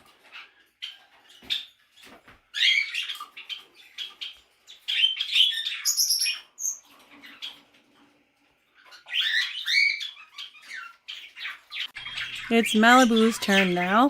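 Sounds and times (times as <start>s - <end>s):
budgerigars chattering and warbling: 2.5s - 7.7s, 8.7s - 14.0s
thin high peeps: 9.1s - 14.0s.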